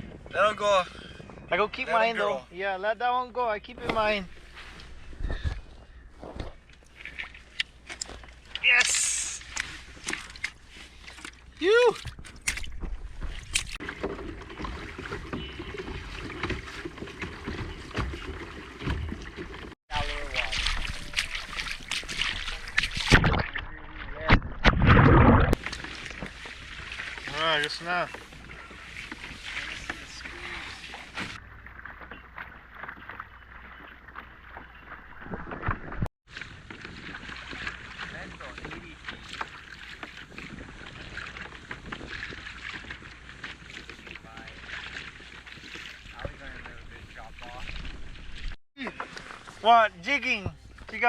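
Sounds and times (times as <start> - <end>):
water splashing around kayak: 0.0 - 51.0.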